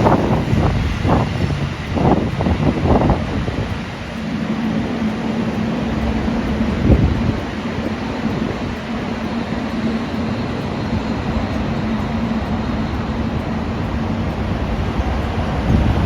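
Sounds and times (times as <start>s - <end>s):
faint steady hum: 0.0s - 16.0s
train rumbling past: 0.0s - 16.0s.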